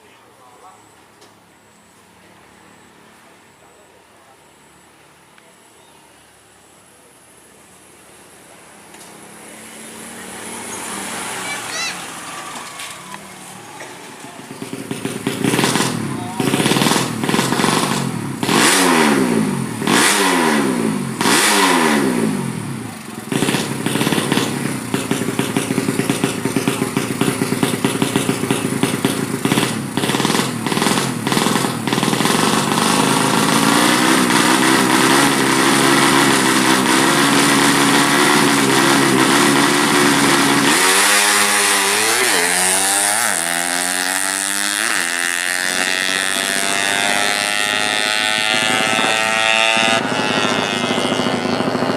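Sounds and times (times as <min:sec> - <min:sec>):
motorcycle engine revving: 0:08.7 - 0:51.9.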